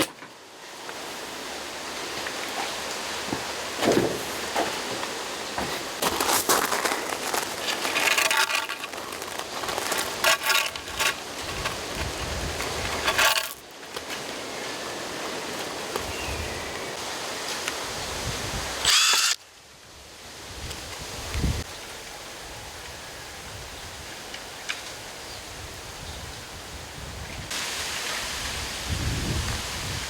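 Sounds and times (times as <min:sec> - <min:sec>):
drill boring into bamboo: 0:18.8 - 0:19.4.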